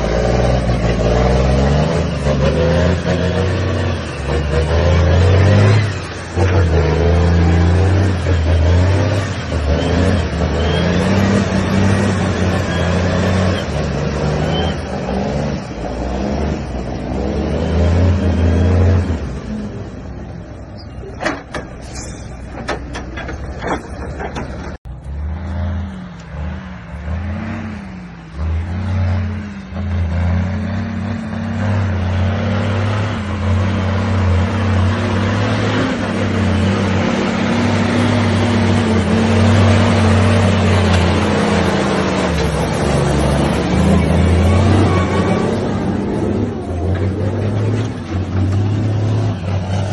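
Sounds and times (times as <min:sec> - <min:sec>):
truck diesel engine under load: 0:00.0 - 0:49.9.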